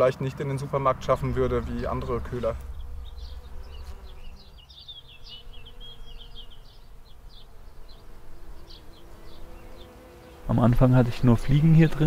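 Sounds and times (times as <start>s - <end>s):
faint steady hum: 0.4s - 9.8s
low rumble: 0.6s - 8.6s
small songbird twittering: 2.6s - 10.4s.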